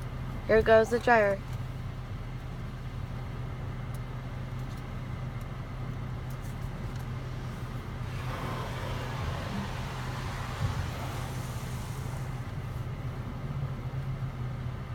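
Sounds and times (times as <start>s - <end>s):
low hum: 7.4s - 13.2s
rush of blown air: 7.6s - 13.0s.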